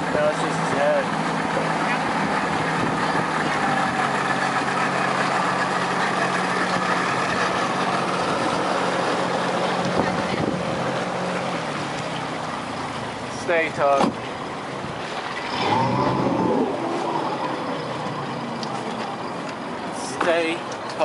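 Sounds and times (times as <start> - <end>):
motorboat engine drone: 0.0 - 20.0
water noise: 0.0 - 21.0
rushing wind: 2.0 - 5.6, 6.3 - 11.8, 14.0 - 19.9.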